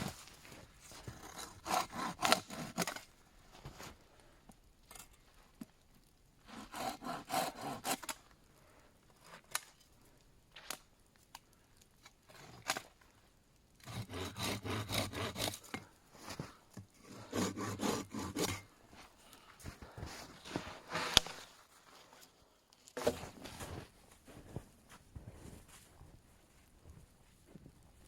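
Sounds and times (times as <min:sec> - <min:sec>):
hand saw cutting wood: 0:01.1 - 0:03.0, 0:06.5 - 0:08.2, 0:13.8 - 0:15.8, 0:17.0 - 0:18.7.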